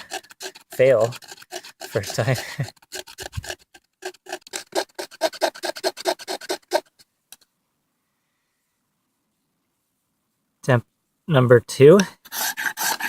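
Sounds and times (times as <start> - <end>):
knife scraping bark: 0.0 - 7.0, 12.2 - 13.0.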